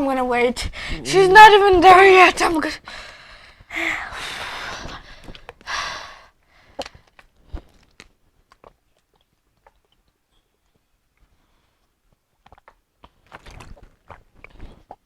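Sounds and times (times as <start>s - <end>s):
chewing fruit crunches: 12.4s - 15.0s.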